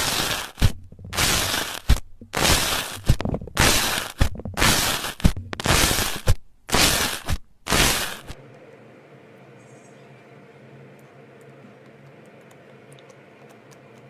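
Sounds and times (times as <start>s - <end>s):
slime crackling squishes: 0.0s - 8.4s.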